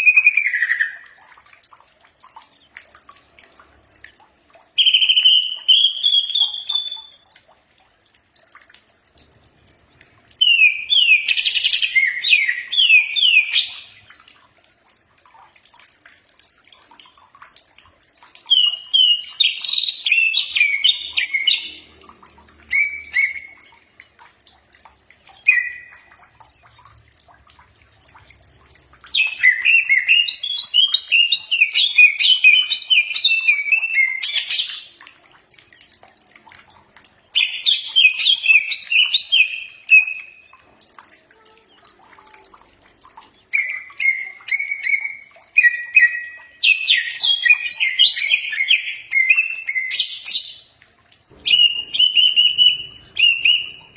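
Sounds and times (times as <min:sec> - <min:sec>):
bird singing rapid chirping phrases: 0:04.8 - 0:07.2, 0:10.3 - 0:14.1, 0:18.5 - 0:23.8, 0:25.3 - 0:26.7, 0:29.1 - 0:35.0, 0:43.4 - 0:50.7, 0:51.3 - 0:53.9.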